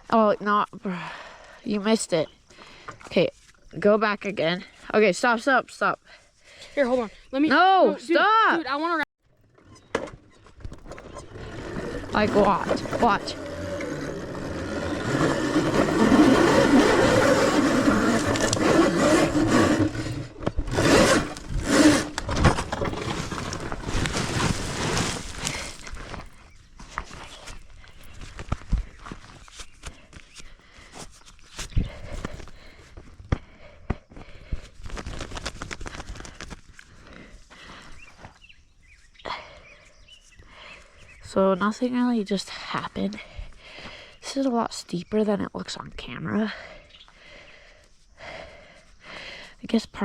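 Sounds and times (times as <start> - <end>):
wind and tyres rumbling: 9.4 - 39.1
electric dirt bike surging: 10.6 - 25.8
dry leaves and twigs crunching: 10.6 - 30.4.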